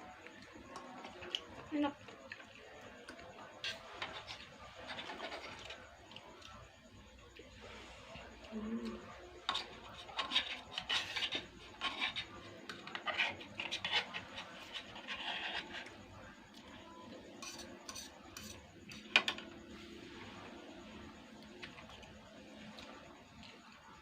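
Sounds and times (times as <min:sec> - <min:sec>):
utensils scraping and clinking dish: 0:03.6 - 0:05.8, 0:09.4 - 0:16.0, 0:17.3 - 0:19.5.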